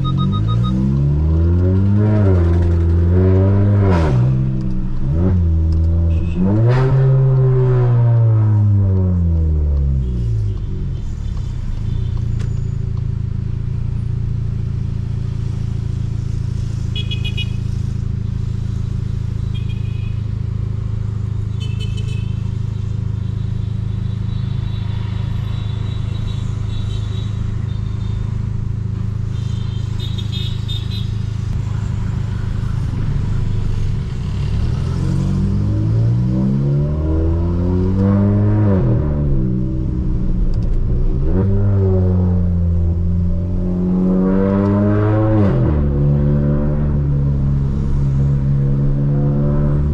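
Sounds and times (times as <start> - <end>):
turbocharged car engine revving: 0.0 - 10.6, 27.6 - 49.9.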